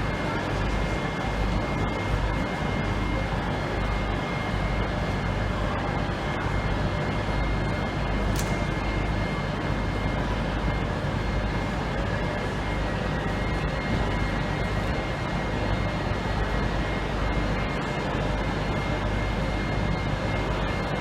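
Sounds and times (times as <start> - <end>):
train mechanical drone: 0.0 - 21.0.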